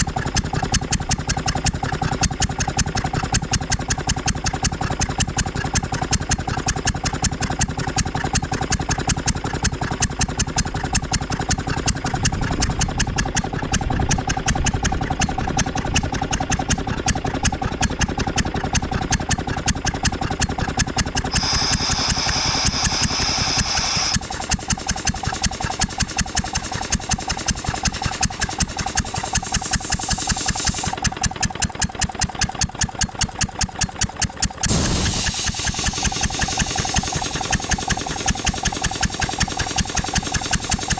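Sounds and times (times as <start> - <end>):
air compressor running: 20.3 - 32.7, 34.1 - 40.9
loud air hiss: 21.3 - 31.0, 34.7 - 40.9.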